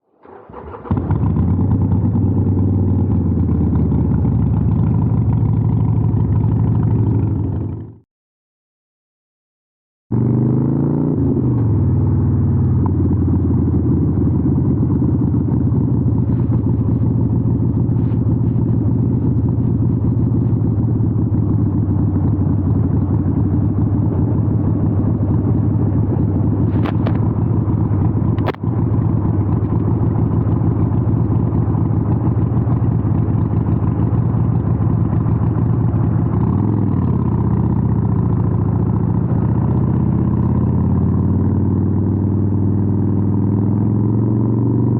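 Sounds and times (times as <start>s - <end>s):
motorcycle engine running: 0.2s - 8.0s, 10.1s - 44.9s
sharp clicks: 28.4s - 28.7s.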